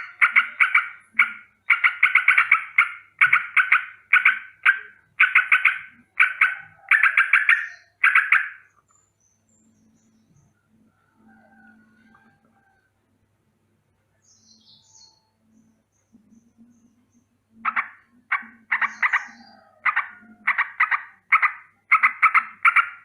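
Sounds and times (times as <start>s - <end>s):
bird alarm chatter: 0.0s - 10.6s, 14.3s - 23.0s.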